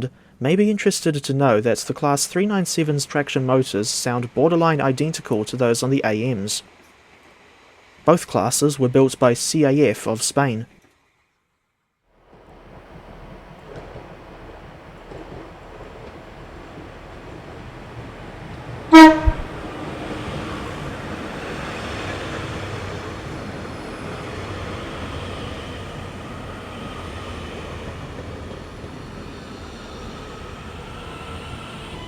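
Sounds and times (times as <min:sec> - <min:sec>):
train rumbling past: 0:12.2 - 0:32.0
train horn toot: 0:18.9 - 0:19.6.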